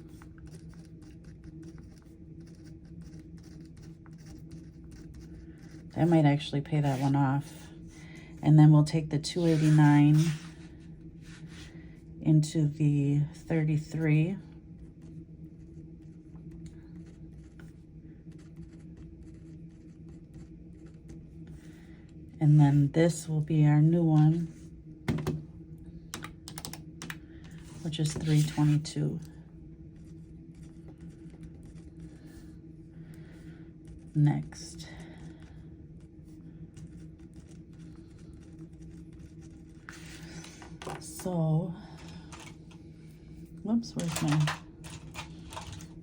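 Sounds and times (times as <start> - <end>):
steady low hum: 0.0 - 46.0
pen scratching on paper: 0.1 - 7.6, 9.2 - 11.7, 17.0 - 21.2, 27.6 - 29.1, 30.0 - 32.4, 36.8 - 40.6.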